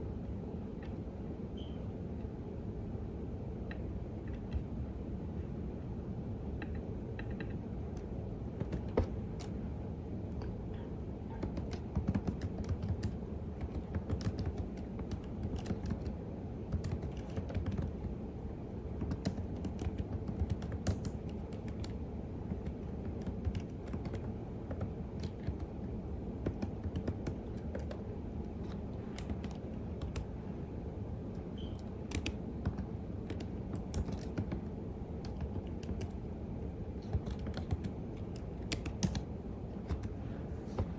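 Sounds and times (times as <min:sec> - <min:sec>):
low background hum: 0:00.0 - 0:40.9
computer keyboard key clicks: 0:06.6 - 0:09.6, 0:11.4 - 0:18.1, 0:19.0 - 0:25.7, 0:26.4 - 0:30.3, 0:31.6 - 0:36.2, 0:37.0 - 0:40.1.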